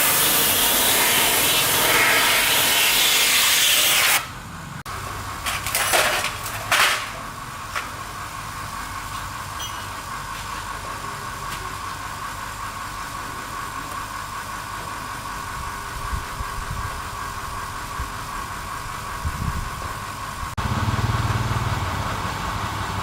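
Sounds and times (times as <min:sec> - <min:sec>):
engine idling with whine: 0:04.2 - 0:05.5, 0:07.0 - 0:23.0.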